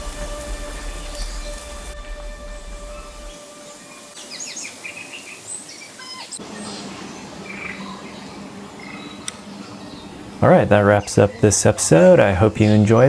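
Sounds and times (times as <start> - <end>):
low hum: 0.0 - 4.2
birds chirping and whistling: 0.0 - 13.0.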